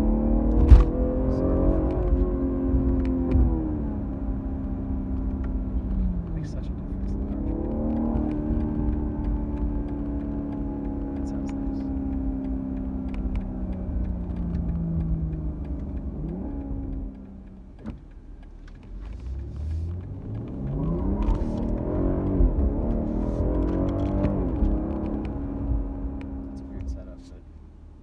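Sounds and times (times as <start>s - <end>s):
car engine revving: 0.0s - 28.0s
gear change: 0.0s - 28.0s.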